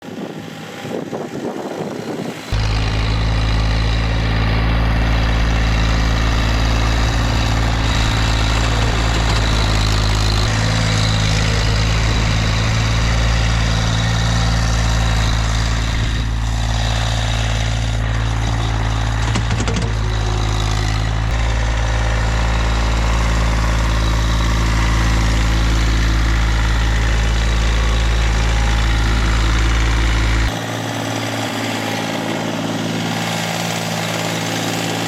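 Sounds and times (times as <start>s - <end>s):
tractor diesel engine droning: 0.0s - 35.0s.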